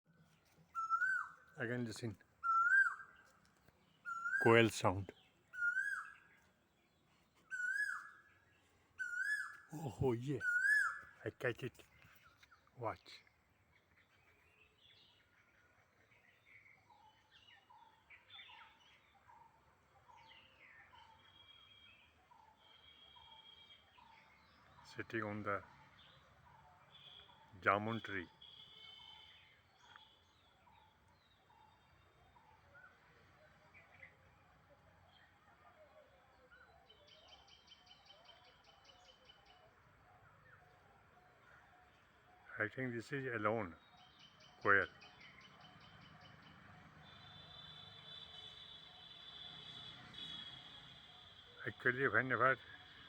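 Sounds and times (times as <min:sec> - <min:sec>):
soft bird chirps: 0:00.1 - 0:53.0
bird chirps and whistles: 0:00.8 - 0:01.4, 0:02.4 - 0:03.2, 0:04.0 - 0:04.5, 0:05.6 - 0:06.2, 0:07.5 - 0:08.2, 0:09.0 - 0:09.7, 0:10.4 - 0:11.1.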